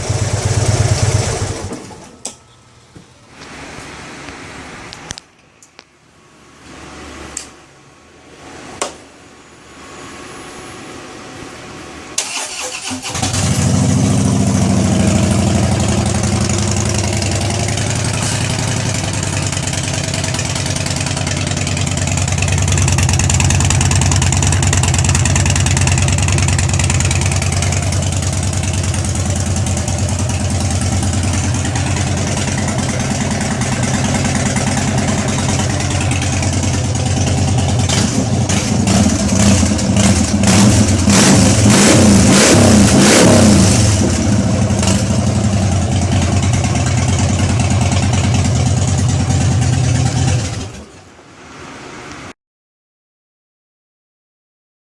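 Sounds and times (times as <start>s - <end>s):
motorcycle engine starting and idling: 0.0s - 2.5s, 12.2s - 51.1s.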